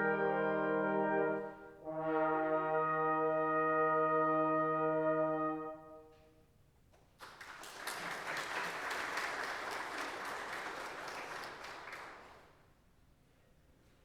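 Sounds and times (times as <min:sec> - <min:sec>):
held brass chord: 0:00.0 - 0:06.2
congregation applauding: 0:07.2 - 0:12.7.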